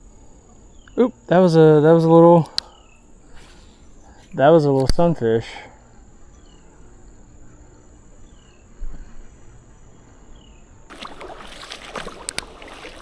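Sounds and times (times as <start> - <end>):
insect drone: 0.0 - 13.0
crackly ticks: 2.0 - 11.0, 11.6 - 13.0
short falling chirps: 2.6 - 13.0
creek water rushing and splashing: 10.7 - 13.0.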